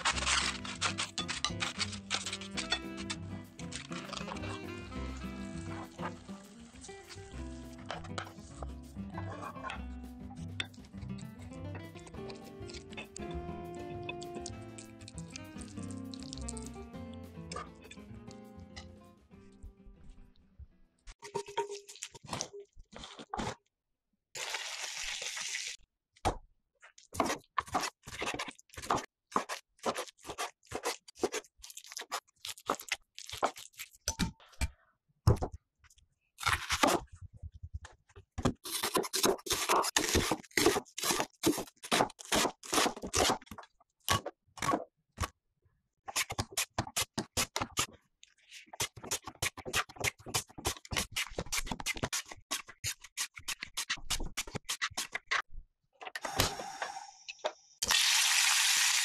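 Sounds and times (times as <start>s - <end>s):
potato sliced on mandoline: 0.0s - 4.7s.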